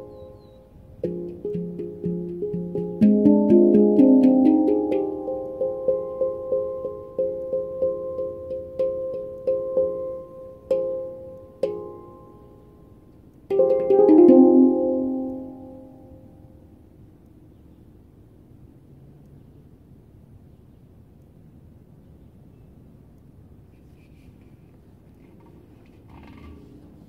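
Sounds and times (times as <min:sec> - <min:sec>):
handpan notes ringing: 0:00.0 - 0:12.8, 0:13.5 - 0:16.4.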